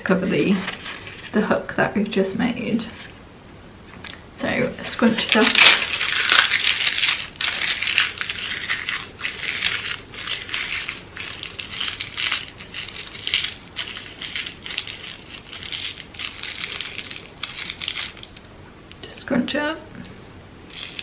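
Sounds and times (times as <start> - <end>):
crepe paper crumpling: 0.3 - 1.4, 5.1 - 18.5, 20.7 - 21.0.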